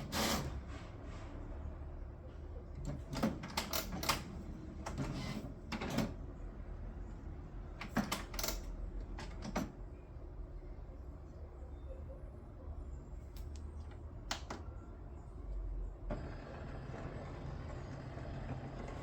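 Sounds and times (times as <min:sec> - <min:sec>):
printer mechanism clacking: 0:02.8 - 0:06.4, 0:07.7 - 0:09.8.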